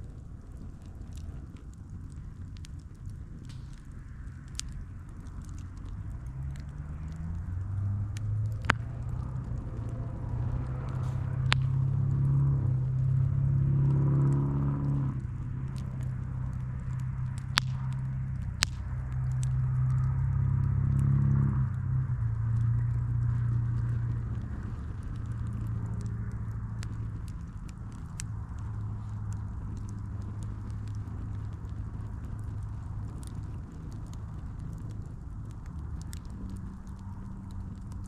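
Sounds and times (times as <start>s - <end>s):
wood popping: 0.0s - 21.0s
campfire burning: 0.0s - 38.0s
low rumble: 0.0s - 38.0s.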